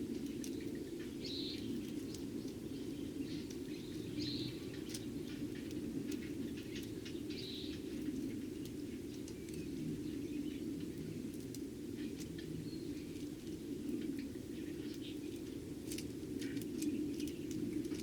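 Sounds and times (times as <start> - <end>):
sparrows chirping: 1.1 - 8.0.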